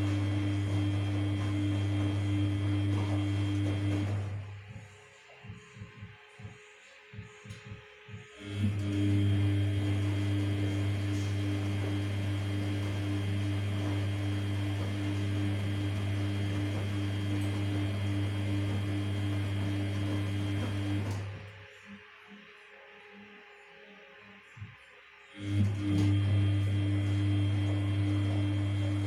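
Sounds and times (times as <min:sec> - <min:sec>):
washing machine running: 0:00.0 - 0:06.1, 0:08.3 - 0:21.8, 0:25.3 - 0:29.0.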